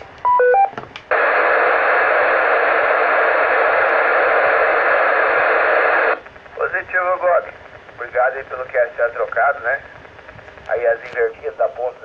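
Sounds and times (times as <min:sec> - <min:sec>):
radio hiss: 0:01.1 - 0:12.0.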